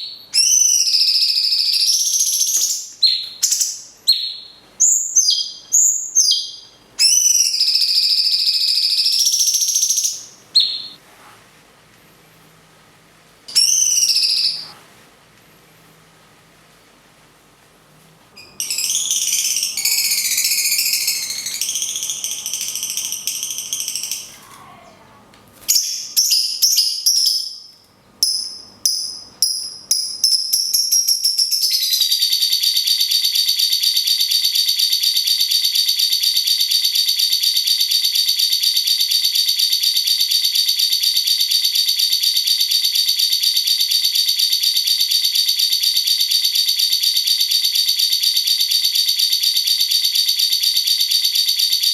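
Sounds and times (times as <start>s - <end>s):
caged birds chattering and trilling: 0.0s - 11.0s, 13.5s - 14.7s, 18.4s - 32.2s.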